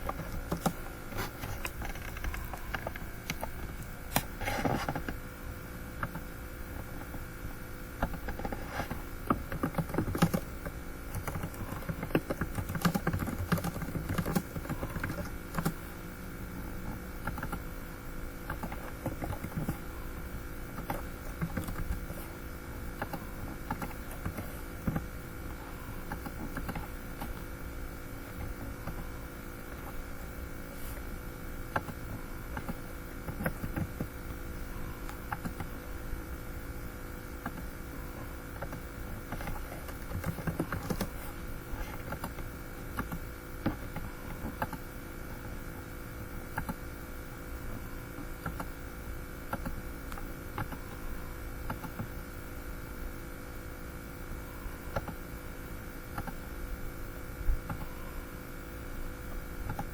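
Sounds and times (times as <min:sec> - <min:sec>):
computer keyboard typing: 0:00.0 - 0:05.2, 0:08.0 - 0:15.9, 0:16.8 - 0:17.7, 0:18.4 - 0:27.5, 0:31.7 - 0:34.2, 0:35.0 - 0:35.8, 0:38.5 - 0:44.9, 0:46.5 - 0:46.8, 0:48.4 - 0:48.8, 0:49.5 - 0:51.1, 0:51.7 - 0:52.2, 0:54.9 - 0:55.3, 0:56.1 - 0:56.4, 0:59.6 - 0:59.9
steady low hum: 0:00.0 - 0:59.9.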